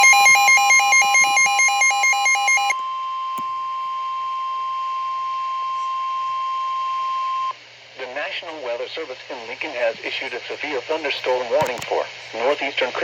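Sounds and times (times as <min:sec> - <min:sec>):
steady alarm tone: 0:00.0 - 0:07.5.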